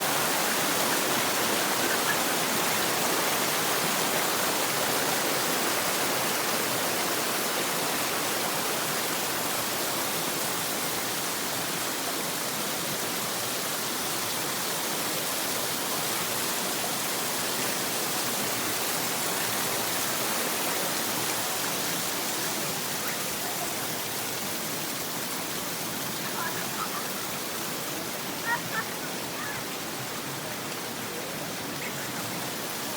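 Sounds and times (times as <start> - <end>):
running water rushing: 0.0 - 32.9.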